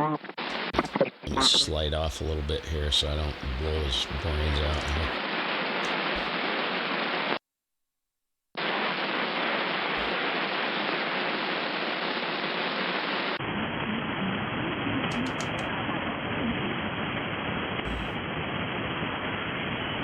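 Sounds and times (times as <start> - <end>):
radio static hiss: 0.0 - 6.9, 9.9 - 10.6, 17.9 - 18.2.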